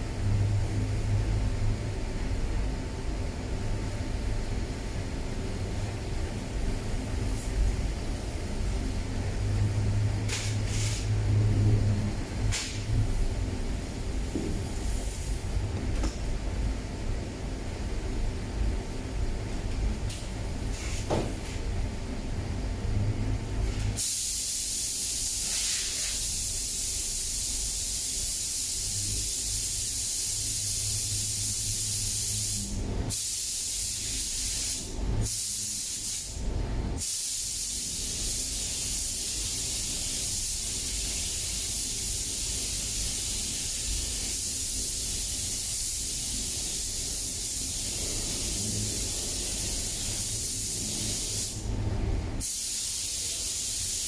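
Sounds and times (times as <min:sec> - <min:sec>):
paint spray gun hissing: 0:10.3 - 0:11.1, 0:24.0 - 0:36.4, 0:37.0 - 0:51.6, 0:52.4 - 0:54.0.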